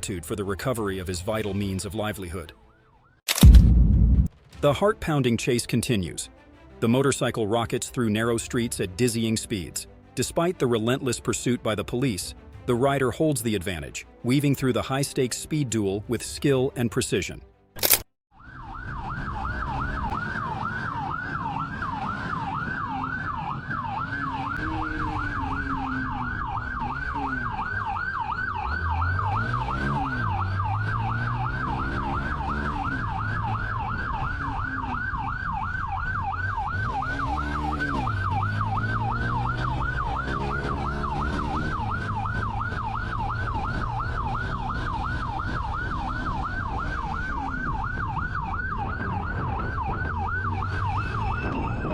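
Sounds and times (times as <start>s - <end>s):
police siren yelping: 18.3s - 51.9s
vehicle engine revving: 19.6s - 35.6s, 36.2s - 51.6s.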